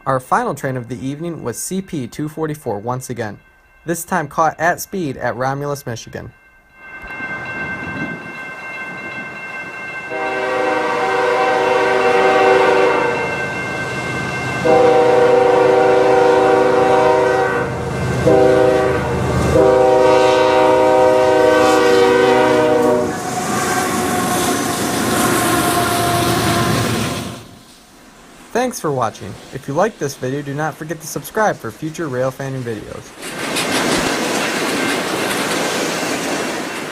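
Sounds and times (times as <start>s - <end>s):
locomotive air horn blasts: 10.1s - 13.3s, 14.6s - 27.6s.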